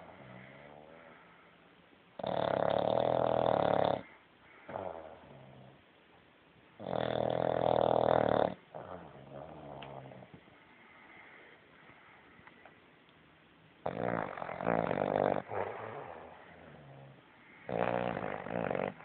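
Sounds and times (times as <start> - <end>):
quiet breaths: 0.0 - 19.0
puppy snoring: 2.2 - 5.8, 6.8 - 10.4, 13.8 - 19.0.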